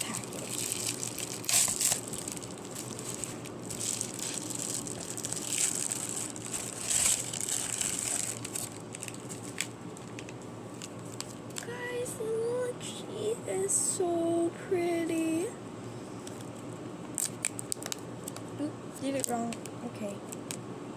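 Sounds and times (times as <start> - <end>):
packaging rustling and crackling: 0.0 - 11.6, 17.2 - 18.5.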